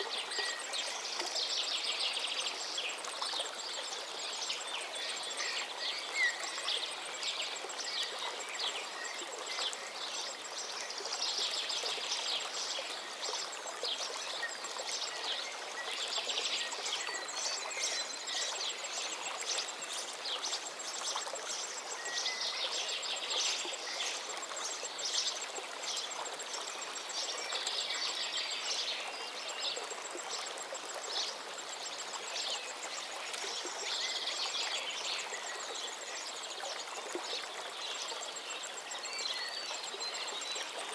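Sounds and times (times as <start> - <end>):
small birds chirping and twittering: 0.0 - 40.9
steady background hiss: 0.0 - 40.9.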